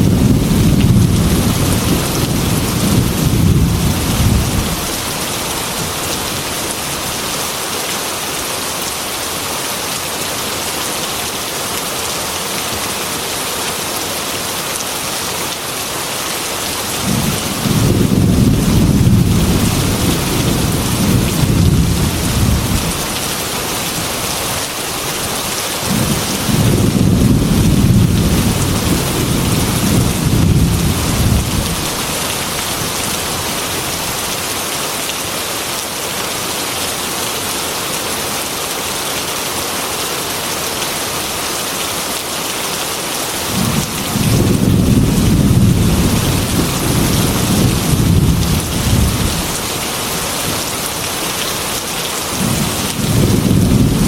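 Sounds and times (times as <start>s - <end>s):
low rolling thunder: 0.0s - 5.2s, 17.0s - 23.2s, 25.8s - 32.9s, 43.5s - 49.7s, 52.4s - 54.0s
heavy rain falling: 0.0s - 54.0s.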